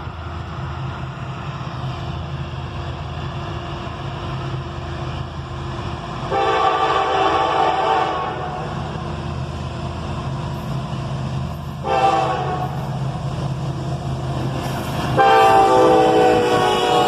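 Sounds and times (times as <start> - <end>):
locomotive engine rumble: 0.0 - 17.0
locomotive air horn blasts: 6.3 - 8.6, 11.8 - 12.8, 15.2 - 17.0.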